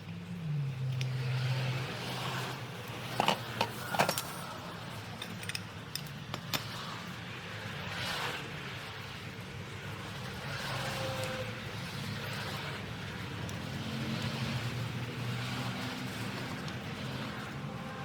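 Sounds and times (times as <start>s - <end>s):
metal tools clinking: 3.0s - 6.8s.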